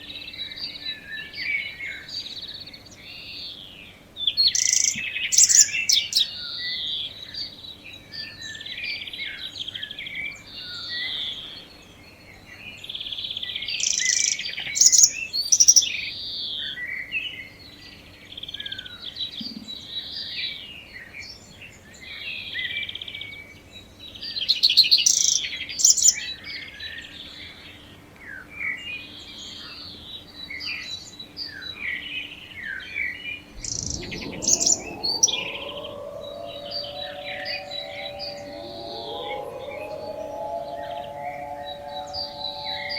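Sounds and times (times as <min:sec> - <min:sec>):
birds chirping and singing: 0:33.6 - 0:42.9
warning siren winding up: 0:33.6 - 0:42.9.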